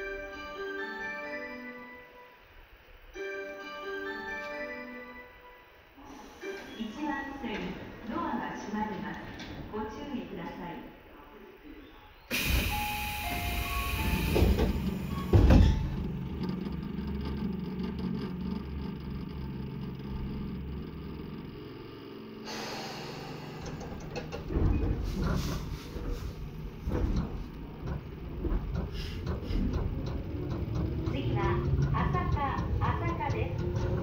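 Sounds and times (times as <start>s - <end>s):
train equipment humming: 0.0s - 34.0s
knocks and rattles: 14.3s - 21.0s, 23.7s - 34.0s.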